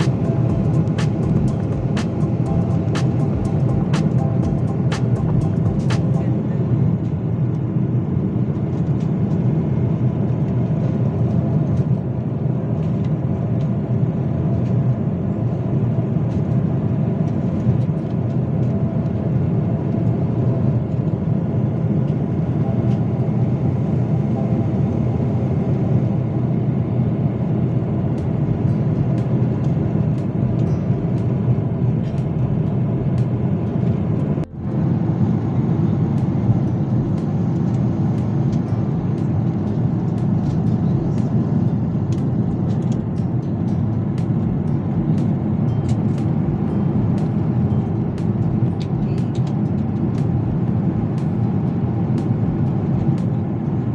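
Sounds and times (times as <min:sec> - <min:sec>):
airliner engines rumbling in cabin: 0:00.0 - 0:53.9.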